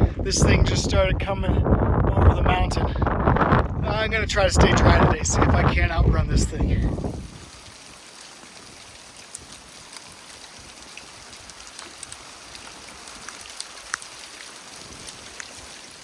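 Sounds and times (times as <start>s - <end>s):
rain hissing: 6.6s - 16.0s.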